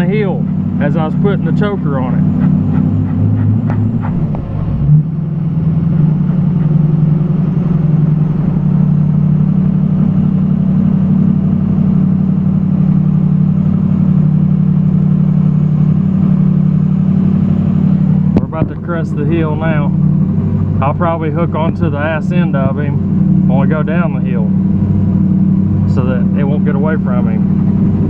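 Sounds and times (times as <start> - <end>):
diesel engine under heavy load: 0.0 - 28.0.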